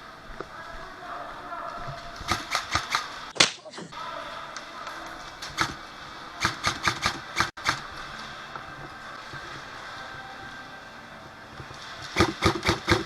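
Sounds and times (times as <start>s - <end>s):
airsoft gun shots: 2.2s - 3.6s, 6.4s - 7.9s, 12.1s - 13.0s.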